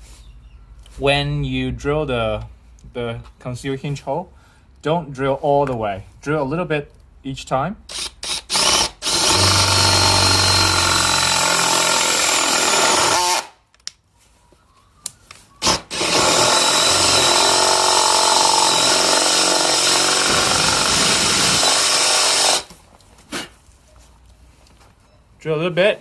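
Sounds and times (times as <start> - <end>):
power drill boring into wood: 7.9 - 13.5, 15.6 - 22.7.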